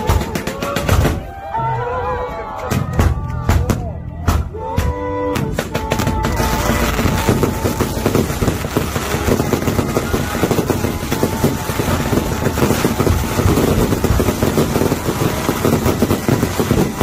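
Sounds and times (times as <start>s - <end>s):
fireworks crackling and popping: 0.0s - 1.3s, 5.4s - 17.0s.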